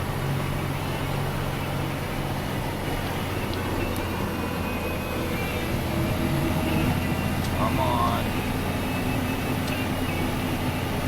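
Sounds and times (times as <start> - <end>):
plow pushing through snow: 0.0 - 11.0
truck engine under load: 0.0 - 11.0.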